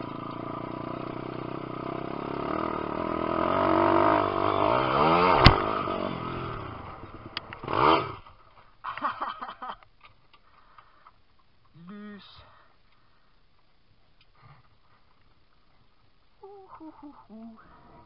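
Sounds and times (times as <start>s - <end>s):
pit bike engine revving: 0.0s - 8.3s
sharp crack: 5.2s - 6.0s.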